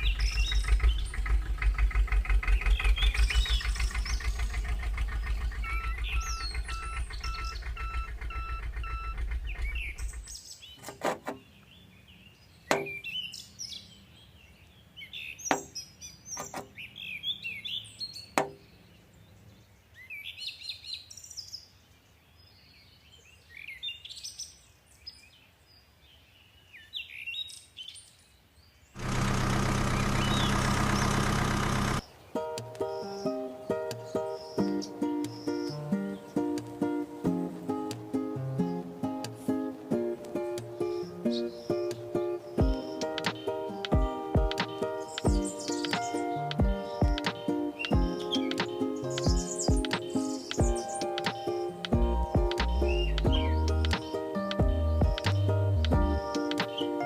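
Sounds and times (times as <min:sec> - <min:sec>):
engine running with rapid pulse: 0:00.0 - 0:10.3, 0:29.0 - 0:32.0
birds chirping: 0:00.0 - 0:57.0
loud burst of noise: 0:29.0 - 0:32.0
sharp clicks: 0:43.1 - 0:46.0, 0:52.6 - 0:54.1.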